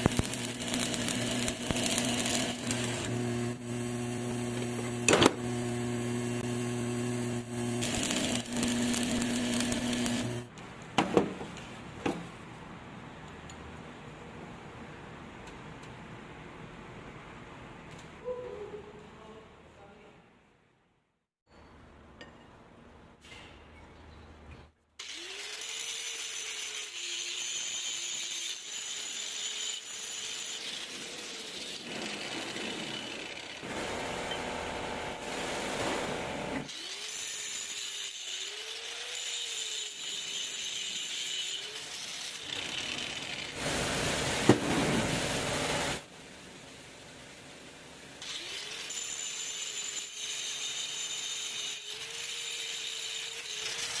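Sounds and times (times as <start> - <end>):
power tool motor running: 0.0 - 10.5.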